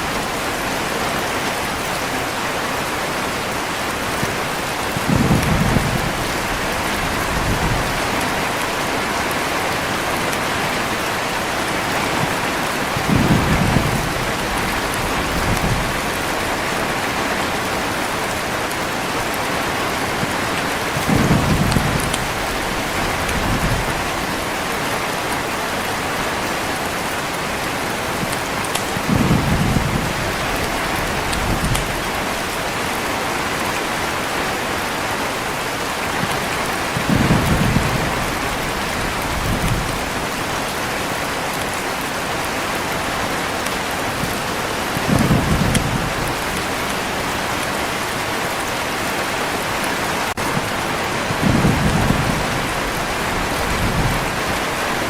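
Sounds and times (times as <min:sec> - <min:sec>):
heavy rain: 0:00.0 - 0:55.0
low thunder rolls: 0:04.9 - 0:08.4, 0:12.0 - 0:16.8, 0:20.9 - 0:24.3, 0:28.2 - 0:32.8, 0:37.0 - 0:40.4, 0:44.2 - 0:46.7, 0:50.4 - 0:55.0.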